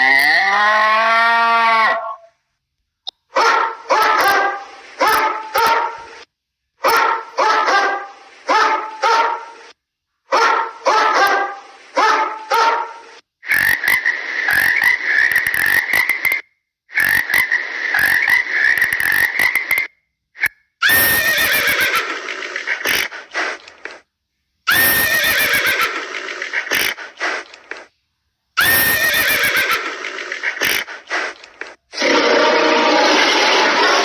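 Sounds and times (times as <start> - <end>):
frog croaking: 13.4 - 23.3, 24.7 - 27.4, 28.6 - 31.2
frog rasping trill: 13.4 - 23.6, 24.7 - 27.4, 28.6 - 31.4.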